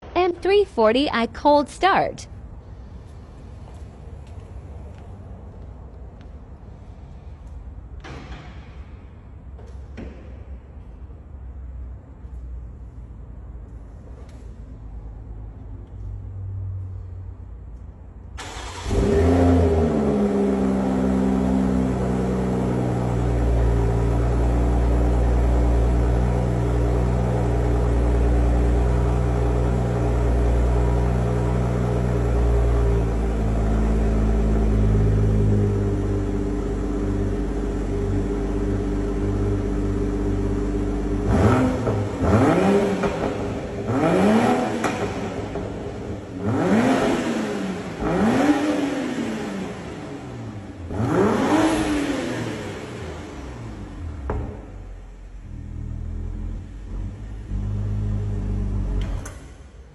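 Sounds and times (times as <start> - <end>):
car engine starting: 13.6 - 59.9
car engine idling: 17.8 - 59.9
engine revving: 18.4 - 54.7.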